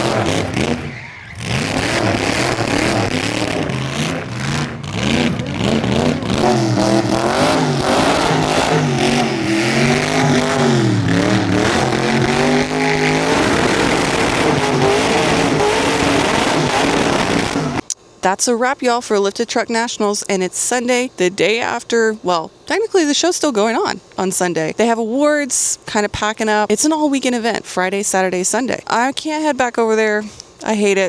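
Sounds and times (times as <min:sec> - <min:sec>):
vehicle engine revving hard: 0:00.0 - 0:17.8.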